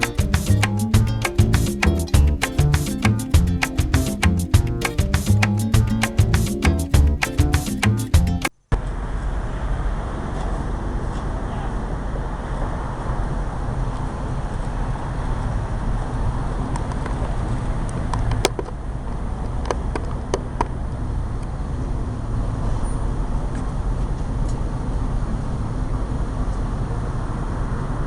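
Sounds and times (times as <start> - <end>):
low rumble of street traffic: 8.3 - 28.0.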